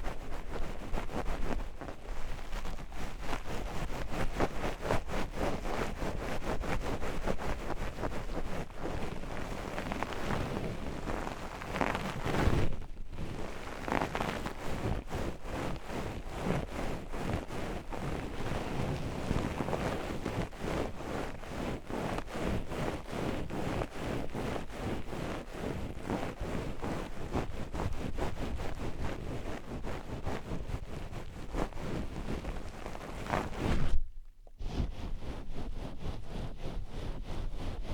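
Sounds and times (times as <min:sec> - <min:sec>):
oiled hands rubbing microphone: 0:00.0 - 0:37.9.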